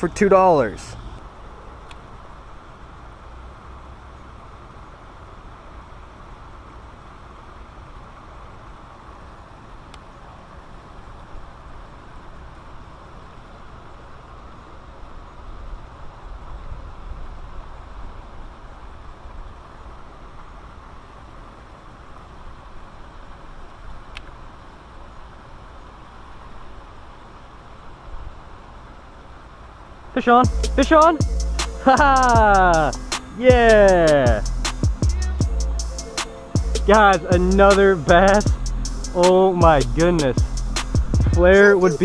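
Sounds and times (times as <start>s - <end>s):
low rumble: 30.5s - 41.6s
sharp click: 34.7s - 35.0s, 40.8s - 41.1s.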